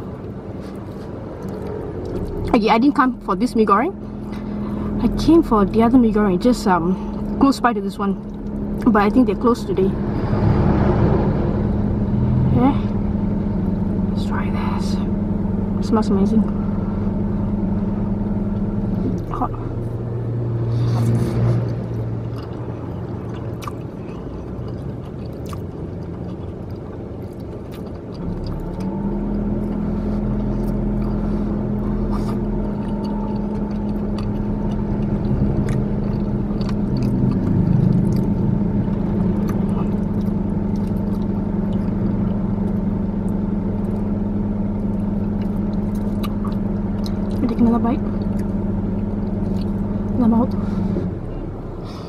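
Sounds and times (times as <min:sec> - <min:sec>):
car engine idling: 0:00.0 - 0:52.0
person chewing: 0:00.1 - 0:02.5, 0:20.6 - 0:50.9.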